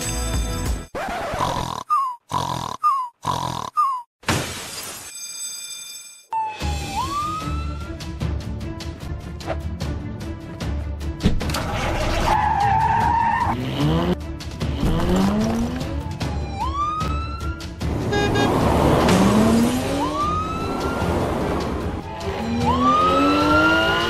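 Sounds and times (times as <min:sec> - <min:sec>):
background music: 0:00.0 - 0:00.9, 0:06.4 - 0:24.0
tire squeal: 0:11.6 - 0:13.6
engine revving: 0:13.0 - 0:16.2, 0:17.8 - 0:24.0.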